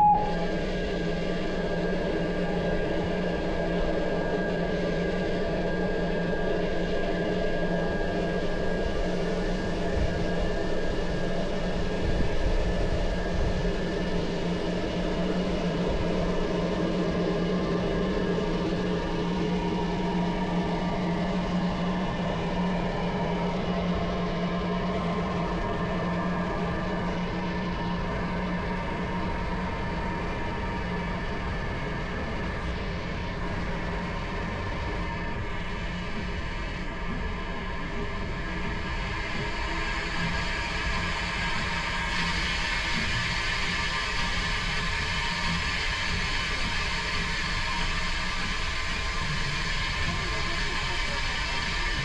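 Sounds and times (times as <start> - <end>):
train running past: 0.0 - 0.8
low hum: 0.0 - 4.9
steam train rumbling: 33.0 - 52.0.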